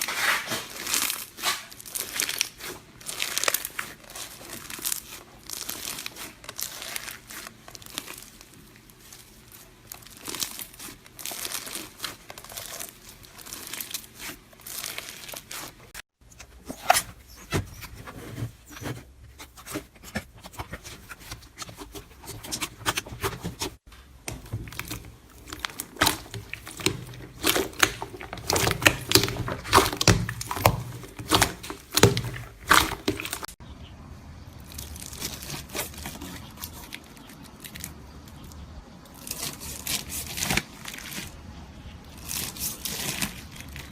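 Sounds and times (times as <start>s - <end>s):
slime crackling and popping: 9.9s - 15.8s, 20.6s - 33.6s.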